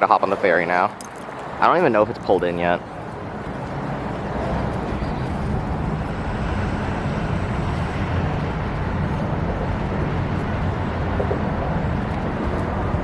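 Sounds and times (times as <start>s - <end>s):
ferry engine low rumble: 1.6s - 13.0s.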